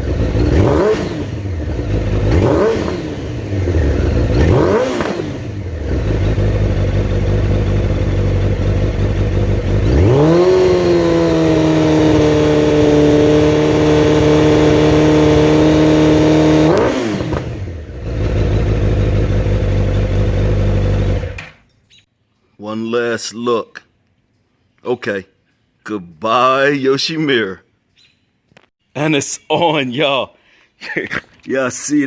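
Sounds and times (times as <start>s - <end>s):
motorcycle engine idling and revving: 0.0s - 21.7s.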